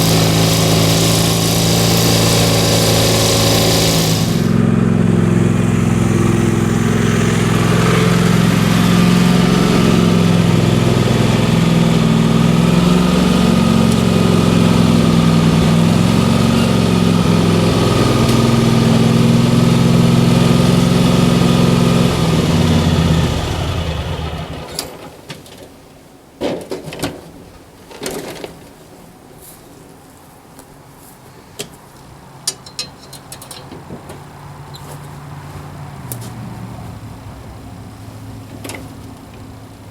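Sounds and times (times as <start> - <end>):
lawn mower engine running: 0.0 - 25.1.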